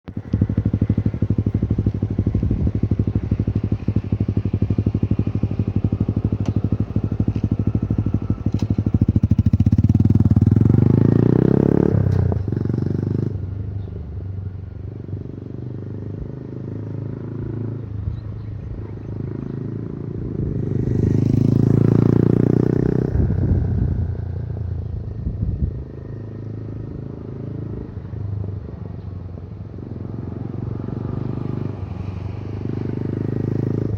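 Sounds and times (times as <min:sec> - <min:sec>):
motorcycle engine exhaust note: 0:00.1 - 0:14.6.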